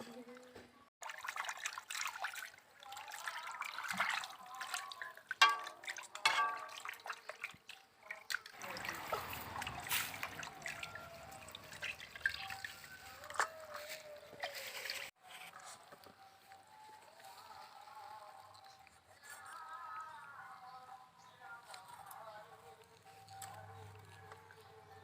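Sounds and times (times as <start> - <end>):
water trickling and splashing: 1.0 - 15.2.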